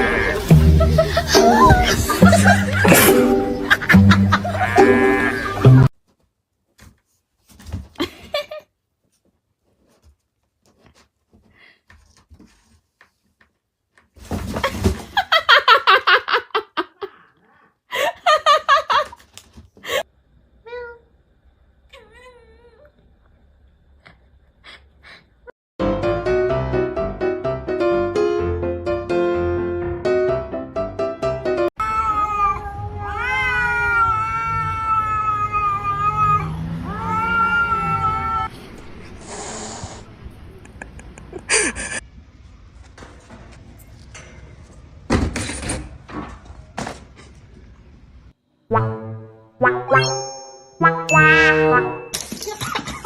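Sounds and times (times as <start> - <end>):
person laughing hard: 0.3 - 5.9, 40.6 - 42.0
piano music: 0.4 - 5.9, 25.8 - 31.7, 48.7 - 52.2
cat yowling: 31.8 - 38.5.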